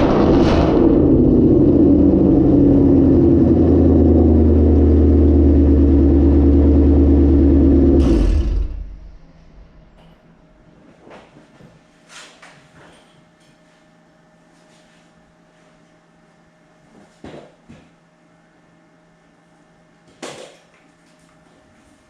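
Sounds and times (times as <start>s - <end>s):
car engine fast idle: 3.0s - 10.0s.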